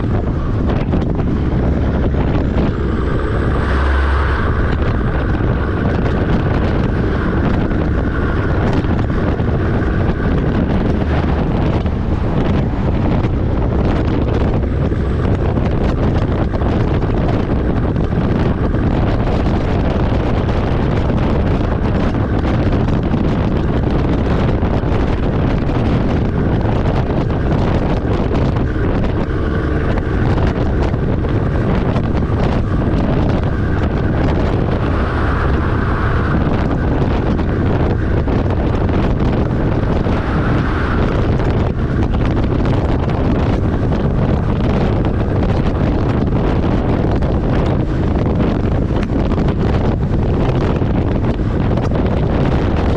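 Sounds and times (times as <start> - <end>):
truck road noise rumble: 0.0 - 52.9
wind buffeting microphone: 0.0 - 52.9.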